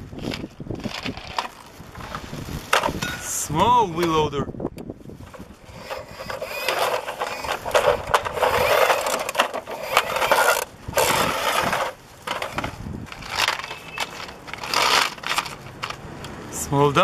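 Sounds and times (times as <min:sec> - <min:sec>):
toy loader scraping and clicking: 0:00.2 - 0:02.2, 0:05.2 - 0:16.0.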